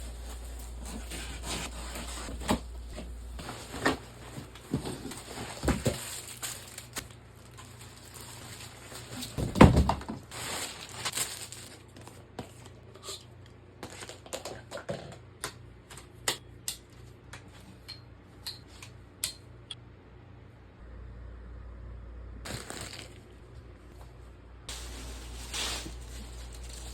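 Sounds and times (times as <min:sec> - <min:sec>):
packaging rustling and tearing: 0:00.0 - 0:09.7, 0:10.3 - 0:12.3, 0:22.5 - 0:23.3, 0:24.7 - 0:26.9.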